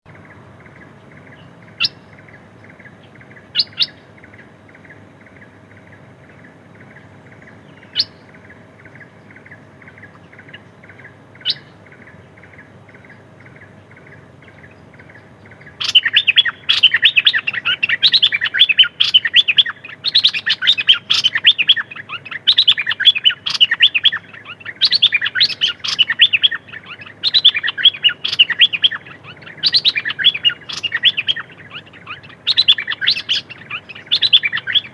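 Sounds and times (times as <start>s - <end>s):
songbird twittering song: 0.0s - 34.9s
songbird short call notes: 0.1s - 4.1s, 5.9s - 34.9s.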